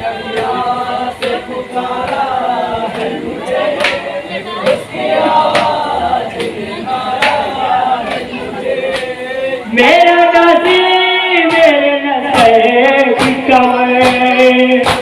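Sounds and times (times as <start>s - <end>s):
group chanting in chorus: 0.0s - 15.0s
hands slapping chests: 3.8s - 4.0s.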